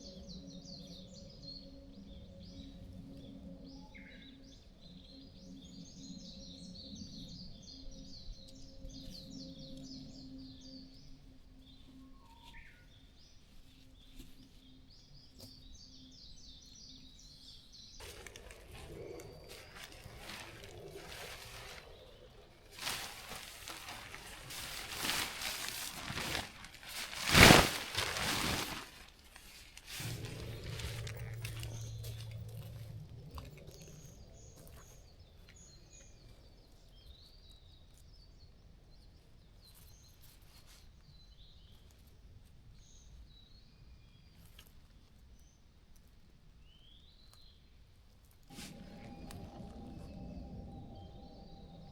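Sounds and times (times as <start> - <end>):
quiet forest ambience: 0.0 - 51.9
small birds chirping: 0.0 - 51.9
rough rustling and handling noise: 18.0 - 36.7, 48.2 - 51.9.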